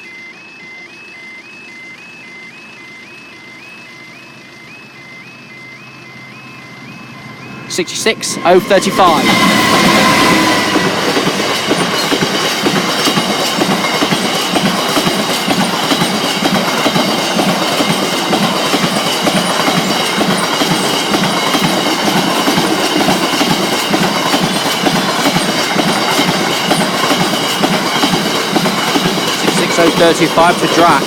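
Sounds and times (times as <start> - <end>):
train wagons rolling past: 6.2 - 31.0
wheels clacking over rail joints: 9.0 - 31.0.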